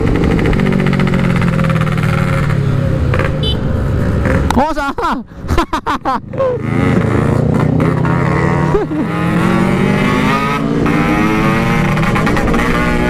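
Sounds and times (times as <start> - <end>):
motorcycle engine running: 0.0 - 4.5.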